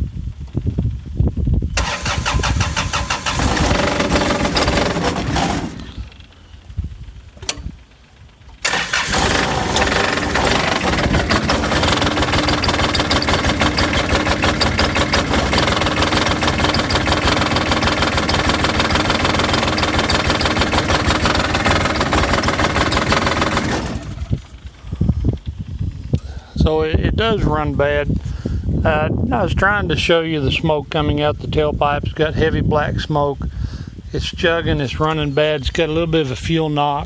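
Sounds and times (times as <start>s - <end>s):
diesel engine chugging roughly: 1.7s - 26.1s.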